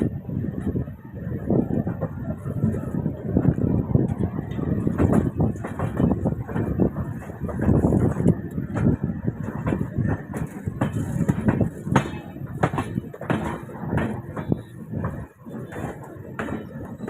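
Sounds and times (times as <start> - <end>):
train rumbling on track: 0.0 - 17.0
knocks and rattles: 3.4 - 17.0.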